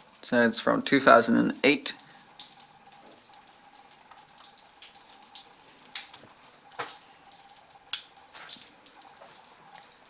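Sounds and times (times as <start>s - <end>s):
faint steady hum: 0.0s - 10.0s
sharp clicks and crackles: 2.0s - 10.0s.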